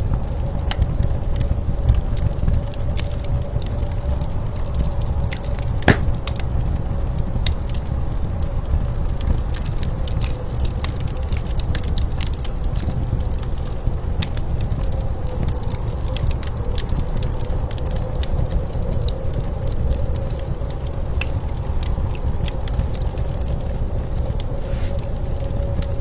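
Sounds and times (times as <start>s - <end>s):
wood fire crackling: 4.3s - 7.0s, 21.2s - 26.0s.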